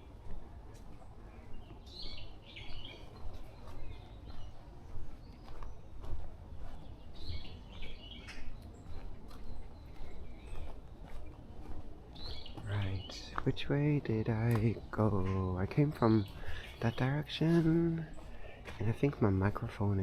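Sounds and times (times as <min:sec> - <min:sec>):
footsteps on forest path: 0:00.0 - 0:20.0.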